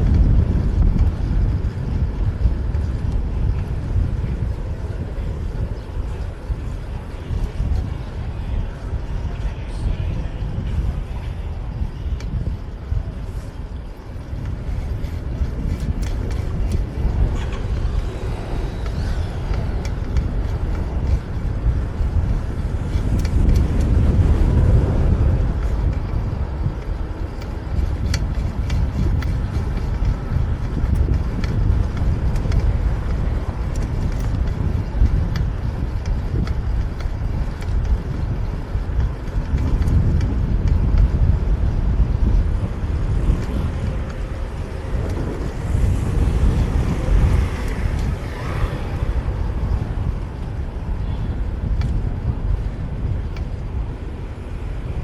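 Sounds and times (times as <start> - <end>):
street traffic: 0.0 - 55.0
wind and road noise rumble: 0.0 - 55.0.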